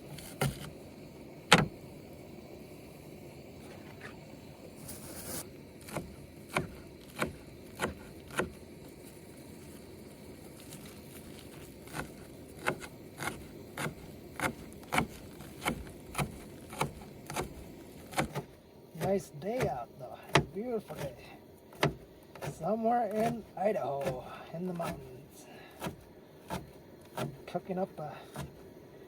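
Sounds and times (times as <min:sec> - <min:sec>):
knife chopping herbs: 0:05.8 - 0:08.6, 0:11.4 - 0:27.5, 0:28.2 - 0:28.7.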